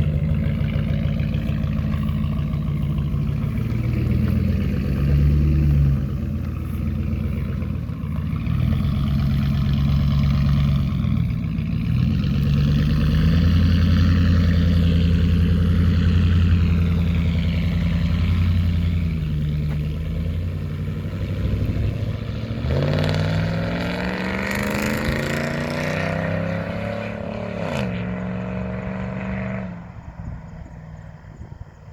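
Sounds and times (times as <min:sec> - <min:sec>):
pickup truck exhaust droning: 0:00.0 - 0:31.9.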